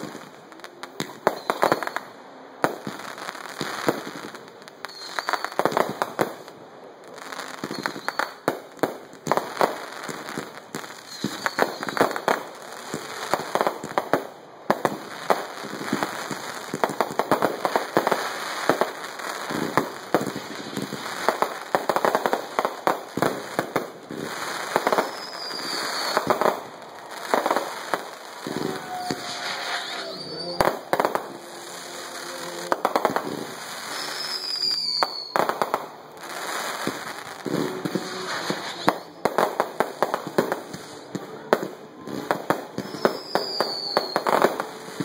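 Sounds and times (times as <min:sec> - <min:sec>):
firecrackers popping and banging: 0:00.0 - 0:06.6, 0:07.2 - 0:45.0
firework whistles: 0:01.0 - 0:02.2, 0:04.8 - 0:06.1, 0:07.4 - 0:08.5, 0:09.8 - 0:13.6, 0:15.6 - 0:39.7, 0:42.7 - 0:45.0.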